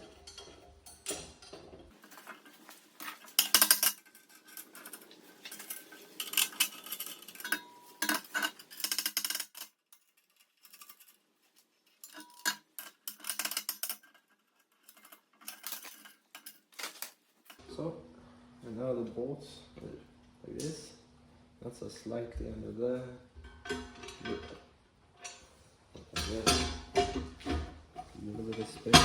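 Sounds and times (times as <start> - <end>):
bolts clinking on steel plate: 0.0 - 11.2, 12.0 - 17.6, 23.4 - 24.6, 25.2 - 29.0.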